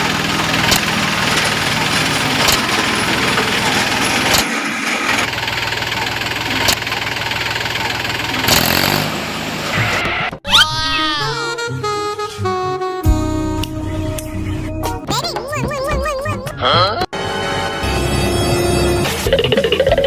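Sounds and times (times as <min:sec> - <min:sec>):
tractor engine running and revving: 0:00.0 - 0:10.4.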